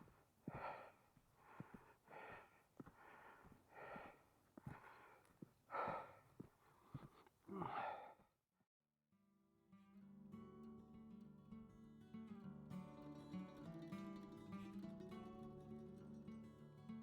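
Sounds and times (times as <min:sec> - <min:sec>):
person breathing hard: 0:00.0 - 0:08.3.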